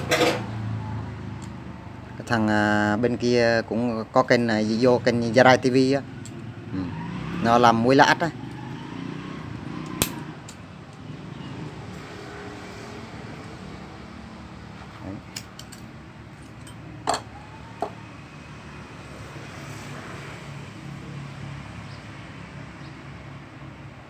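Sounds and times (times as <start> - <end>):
metal knocks and clanks: 0.0 - 0.6.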